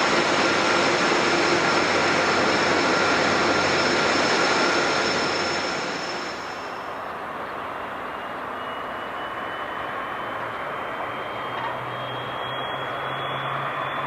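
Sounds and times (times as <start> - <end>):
jet engines rushing with whine: 0.0 - 14.0.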